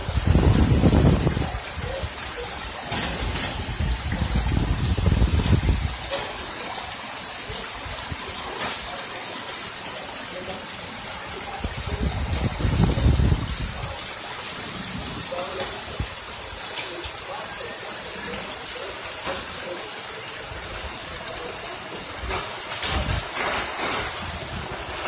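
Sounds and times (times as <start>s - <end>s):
wind buffeting microphone: 0.0s - 2.1s, 3.6s - 6.0s, 11.7s - 14.0s
heavy rain hissing: 0.0s - 25.0s
runoff water rushing: 0.0s - 25.0s.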